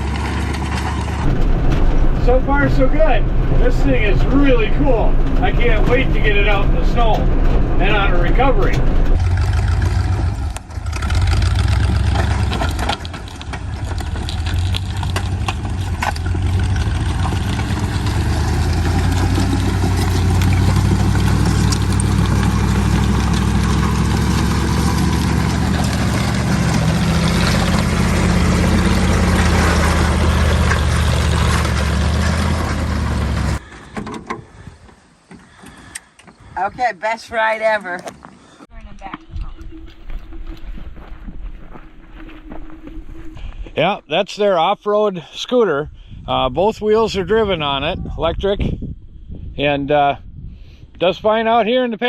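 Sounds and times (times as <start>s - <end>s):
snow vehicle engine running: 0.0s - 33.7s
knocks and rattles: 0.0s - 34.6s.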